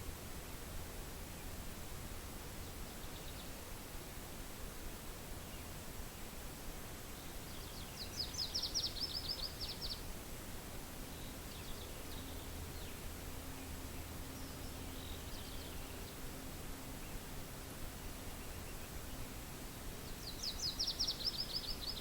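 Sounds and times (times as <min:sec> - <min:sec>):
wind hiss: 0:00.0 - 0:22.0
songbird trilling: 0:07.6 - 0:10.0, 0:20.2 - 0:22.0.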